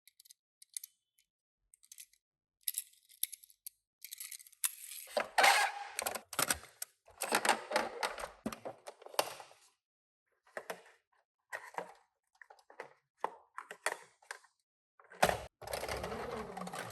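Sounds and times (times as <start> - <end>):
toy cars clicking and clattering: 0.0 - 6.9.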